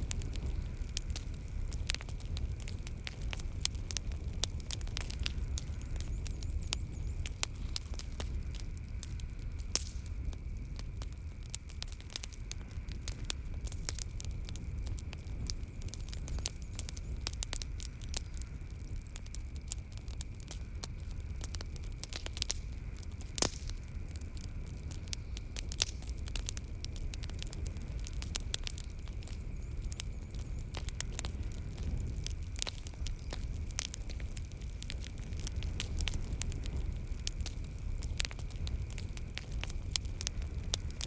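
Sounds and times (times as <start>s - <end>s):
low rumble of flames: 0.0s - 41.0s
wood fire crackling and popping: 0.0s - 41.0s.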